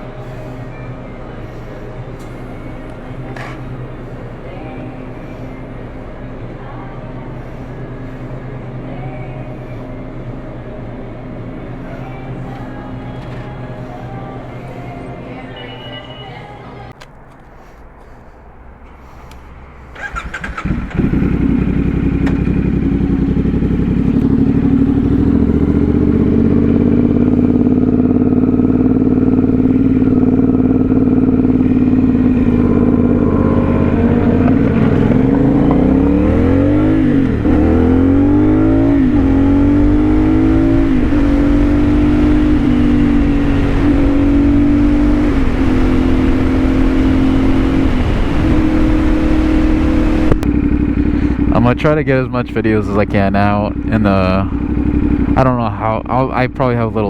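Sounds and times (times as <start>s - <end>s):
motorcycle engine shifting up: 2.2s - 4.9s, 16.9s - 57.0s.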